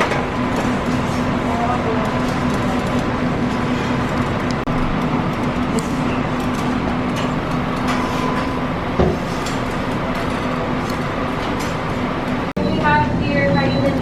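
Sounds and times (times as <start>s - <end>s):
kitchen equipment and ventilation hum: 0.0s - 14.0s.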